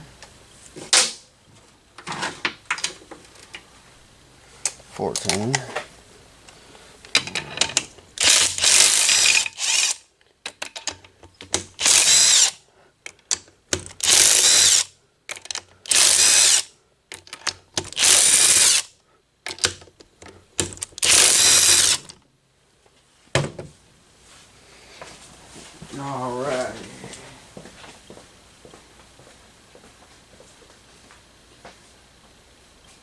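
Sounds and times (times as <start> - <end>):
power tool running: 8.2 - 10.0, 11.8 - 12.6, 14.0 - 14.9, 15.9 - 16.7, 17.9 - 18.9, 21.0 - 22.1.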